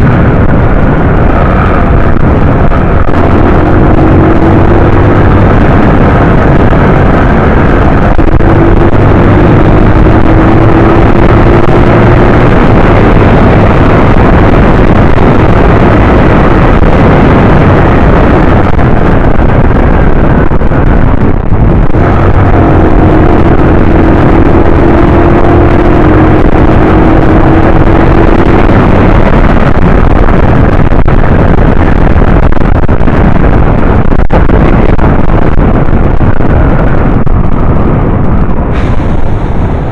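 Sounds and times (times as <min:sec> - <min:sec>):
motorcycle engine accelerating: 0:00.0 - 0:39.9
wind rushing on microphone: 0:00.0 - 0:39.9.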